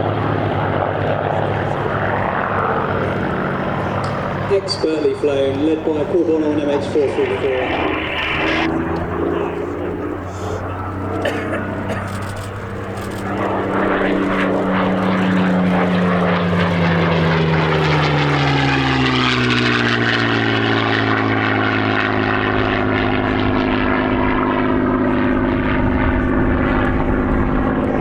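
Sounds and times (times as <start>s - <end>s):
piston engine aircraft droning past: 0.0s - 28.0s.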